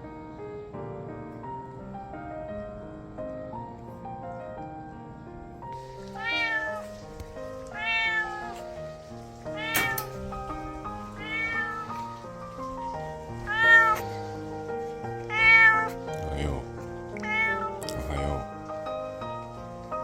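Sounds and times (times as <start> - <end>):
soft piano music: 0.0 - 20.0
cat meowing: 5.8 - 14.4, 15.2 - 18.6.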